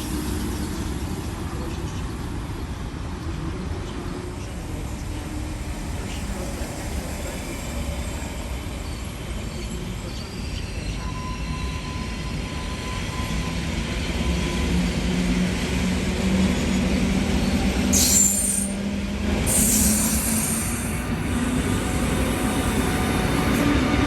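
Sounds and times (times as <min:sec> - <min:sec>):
train rumbling on rails: 0:00.0 - 0:24.0
high wheel squeal: 0:17.9 - 0:18.8, 0:19.5 - 0:21.0.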